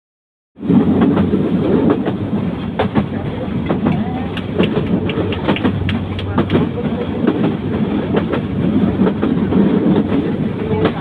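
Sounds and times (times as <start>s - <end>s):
train rumbling on rails: 0.6s - 11.0s
wheels clicking over track: 2.8s - 11.0s.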